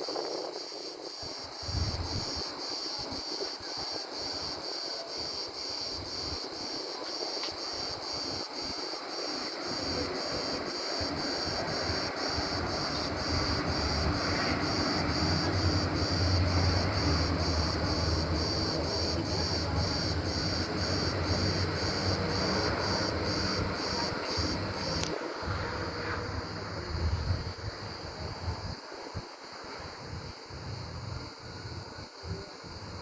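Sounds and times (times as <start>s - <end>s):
cicadas chirring: 0.0s - 28.1s
low rumbling noise: 9.8s - 33.0s.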